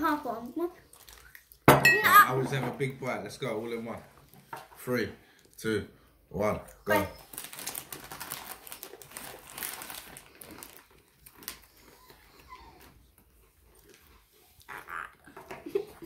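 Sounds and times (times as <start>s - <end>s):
people crunching biscuits: 0.8s - 1.6s, 7.2s - 12.5s.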